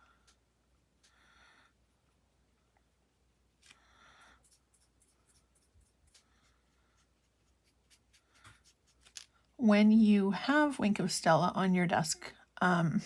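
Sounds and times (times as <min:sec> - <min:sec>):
brush pen stroking on card: 0:00.0 - 0:09.7.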